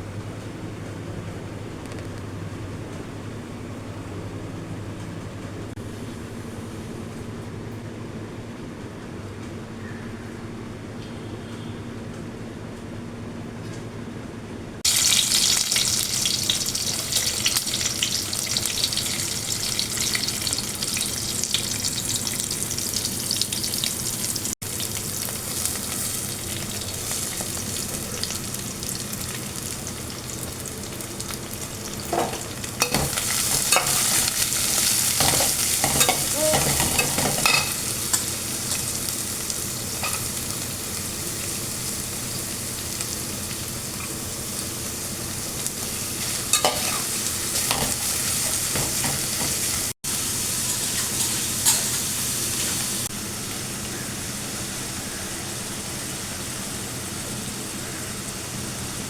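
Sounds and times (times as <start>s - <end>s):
noodles sizzling in a pan: 14.8s - 59.0s.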